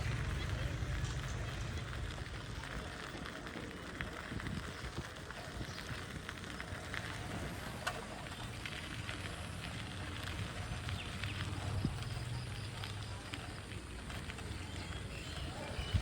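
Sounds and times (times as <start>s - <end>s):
low rumble: 0.0s - 5.2s
light crackles: 0.0s - 16.0s.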